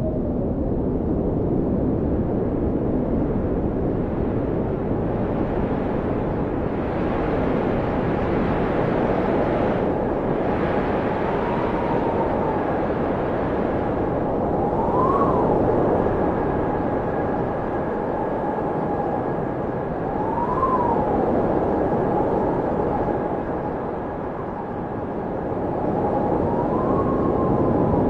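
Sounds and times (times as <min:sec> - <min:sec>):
blizzard wind rushing: 0:00.0 - 0:28.0.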